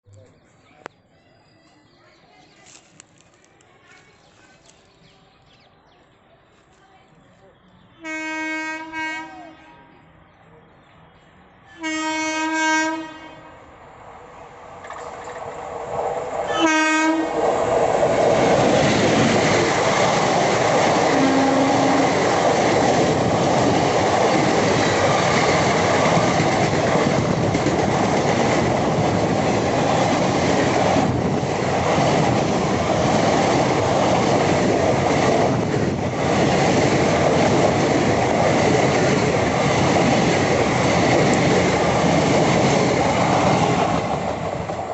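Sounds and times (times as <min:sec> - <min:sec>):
train coaches rattling by: 0:06.0 - 0:44.9
train horn blast: 0:08.0 - 0:10.0, 0:11.7 - 0:13.7, 0:16.5 - 0:17.4, 0:21.1 - 0:22.2.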